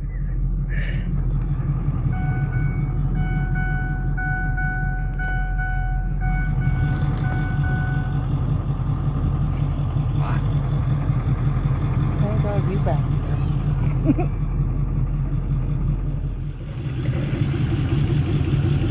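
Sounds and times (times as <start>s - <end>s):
vehicle engine rumbling: 0.0s - 18.9s
short electronic beeps: 2.1s - 8.2s.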